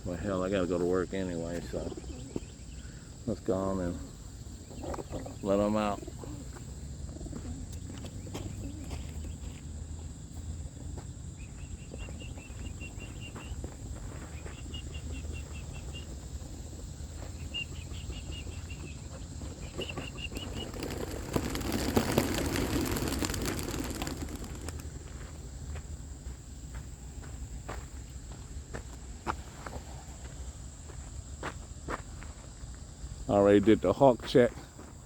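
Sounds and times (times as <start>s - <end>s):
pigeon wingbeats clattering: 18.2s - 25.7s.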